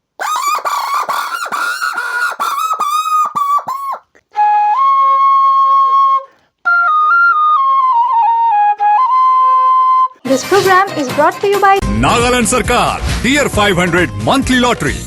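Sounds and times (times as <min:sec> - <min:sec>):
whistled bird imitation: 0:00.2 - 0:10.2
bamboo flute playing: 0:00.2 - 0:10.3.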